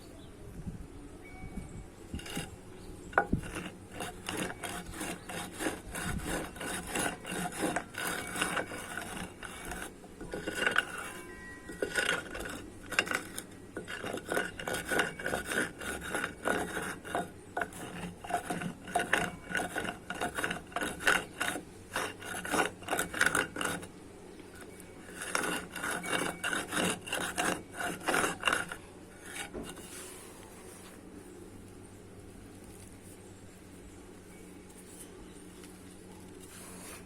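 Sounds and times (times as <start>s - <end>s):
dried mud crunching on a hard floor: 29.2s - 37.0s.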